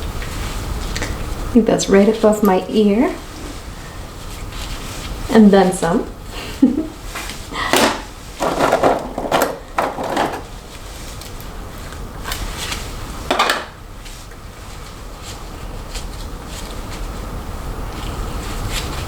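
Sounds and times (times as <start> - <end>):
faint steady hiss: 0.0 - 8.4
plastic hair rollers clattering: 7.8 - 10.6.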